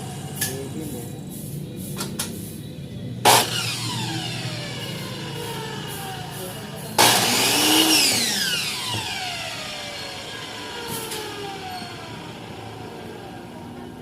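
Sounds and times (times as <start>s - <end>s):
miter saw motor whine: 3.3s - 14.0s.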